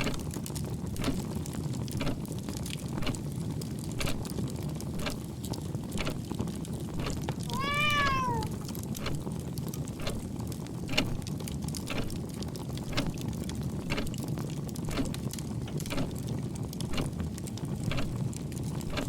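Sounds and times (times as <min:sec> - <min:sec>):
low rumble with crackles: 0:00.0 - 0:19.0
cat meowing: 0:07.5 - 0:08.6.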